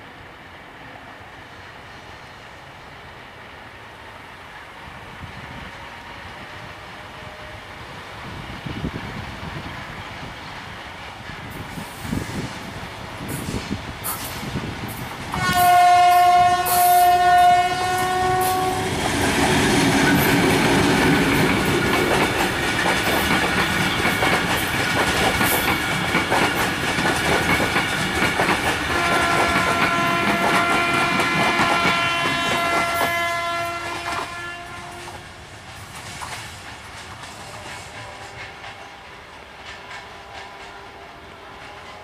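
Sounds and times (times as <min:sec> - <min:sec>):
train air horn: 0:06.0 - 0:07.8, 0:15.3 - 0:19.0, 0:28.9 - 0:35.4, 0:37.4 - 0:42.0
train wheels clattering over rails: 0:08.6 - 0:42.0.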